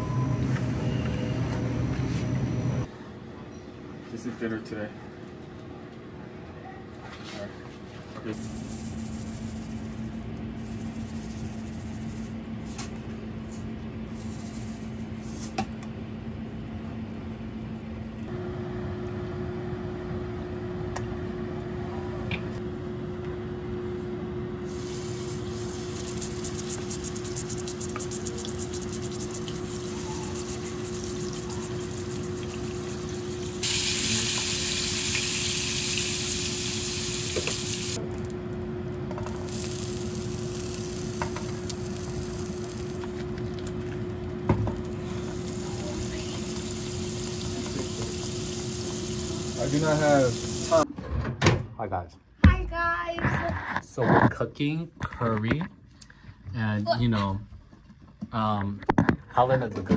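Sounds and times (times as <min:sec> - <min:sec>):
kitchen hum: 0:07.0 - 0:51.3
steak sizzling in frying pan: 0:24.7 - 0:38.0, 0:39.2 - 0:43.1, 0:45.0 - 0:50.8.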